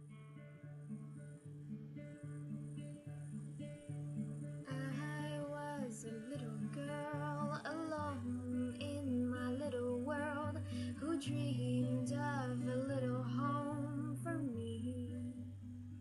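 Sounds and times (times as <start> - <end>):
acoustic guitar picking: 0.0 - 16.0
woman singing: 4.6 - 15.6.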